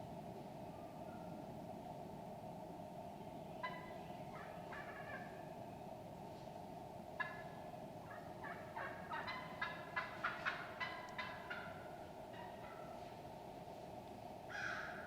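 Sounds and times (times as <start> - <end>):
steady background hiss: 0.0 - 15.0
wild turkey calling: 3.6 - 5.5, 7.2 - 13.1, 14.5 - 15.0.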